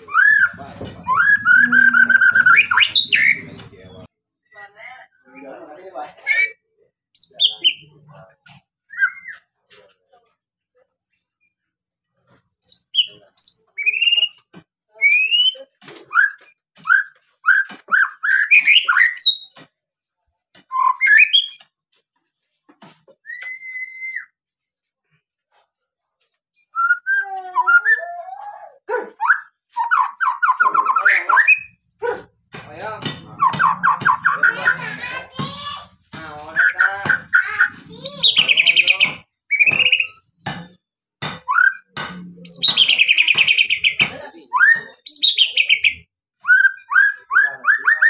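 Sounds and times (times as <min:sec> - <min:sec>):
bird singing whistled phrases: 0:00.1 - 0:03.5, 0:26.7 - 0:28.2, 0:39.5 - 0:40.2, 0:42.5 - 0:48.0.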